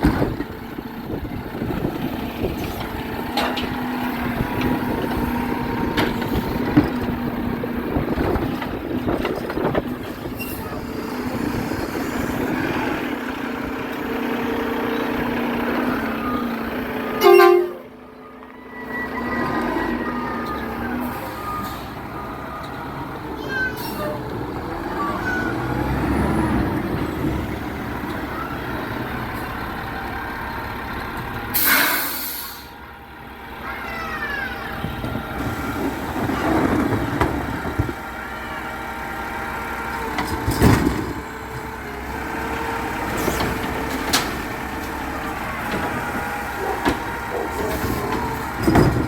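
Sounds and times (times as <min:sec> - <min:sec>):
garbage truck engine running: 0:00.0 - 0:49.0
truck horn toot: 0:17.0 - 0:18.0
clanks: 0:43.0 - 0:49.0.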